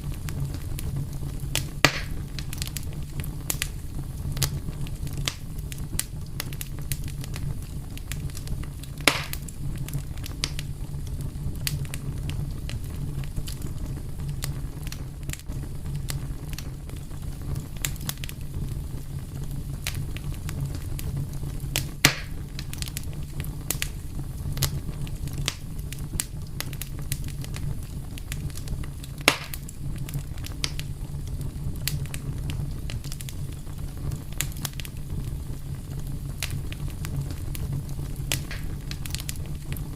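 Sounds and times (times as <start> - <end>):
fire crackling and popping: 0.0 - 39.9
loud fire snaps: 0.0 - 39.9.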